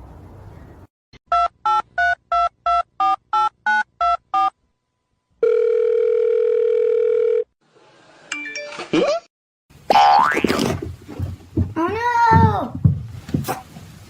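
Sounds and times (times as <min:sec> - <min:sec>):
phone line ringing tone: 0:05.4 - 0:07.5.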